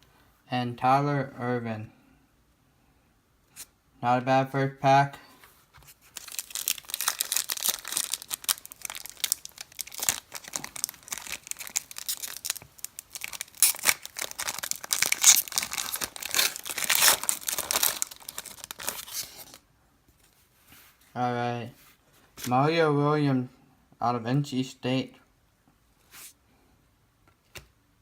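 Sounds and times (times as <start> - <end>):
wrapper crinkling and tearing: 6.0 - 19.6.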